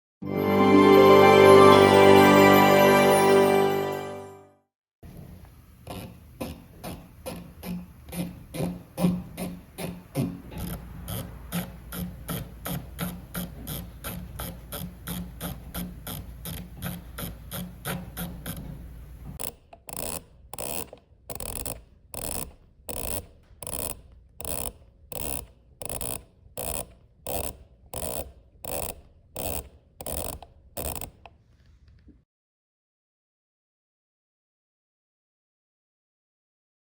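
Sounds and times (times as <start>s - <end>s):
adjustment dial ratchet clicks: 19.4s - 31.4s.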